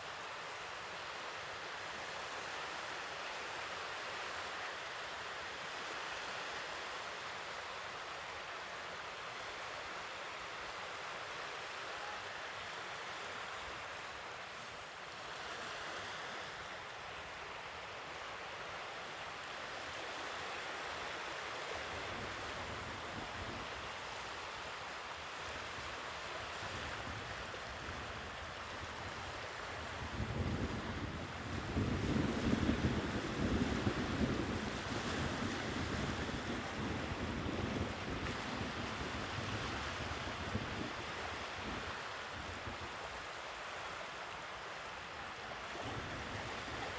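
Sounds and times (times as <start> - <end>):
sea waves washing on shore: 10.6 - 46.9.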